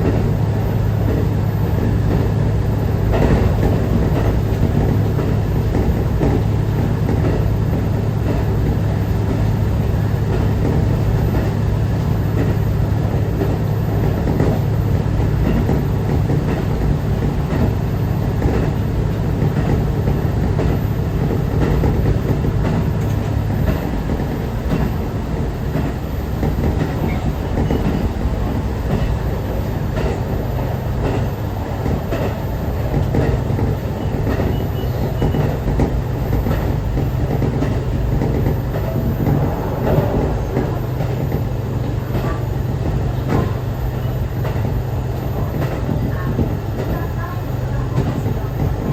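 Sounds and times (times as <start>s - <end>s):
train wheels rumbling: 0.0s - 48.9s
wheels clacking over rail joints: 0.0s - 48.9s
low diesel engine drone: 37.6s - 44.1s.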